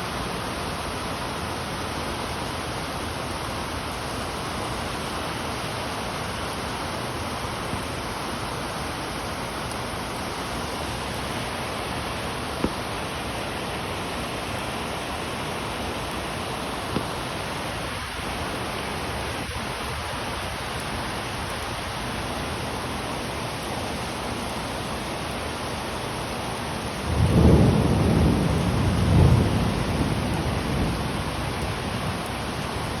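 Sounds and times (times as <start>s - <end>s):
steady rain falling: 0.0s - 33.0s
thunderclap rumbling: 27.1s - 32.3s.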